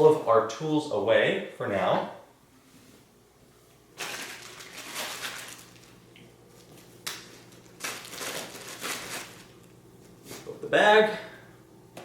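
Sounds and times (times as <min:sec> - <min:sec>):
plastic bag crinkling: 0:04.0 - 0:09.7.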